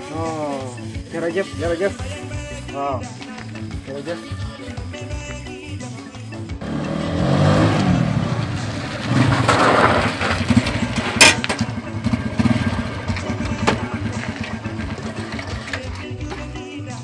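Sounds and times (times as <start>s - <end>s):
motorcycle engine running: 6.5s - 16.5s.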